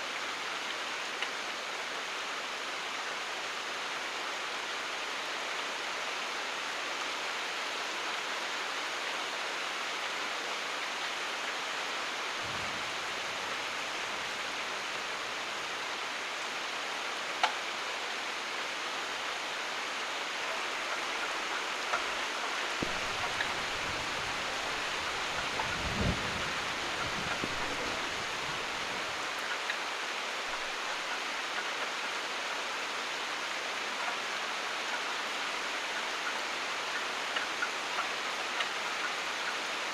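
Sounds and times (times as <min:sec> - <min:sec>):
steady rain falling: 0:00.0 - 0:39.9
thunder rumbling: 0:12.4 - 0:14.1, 0:22.8 - 0:29.0.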